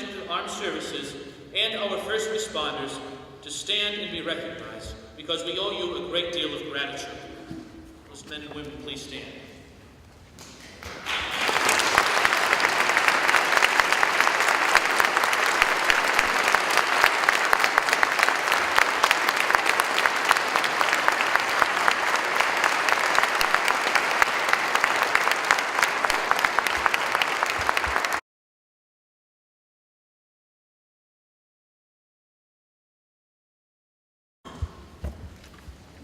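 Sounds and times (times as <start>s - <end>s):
audience applauding: 10.8s - 28.2s.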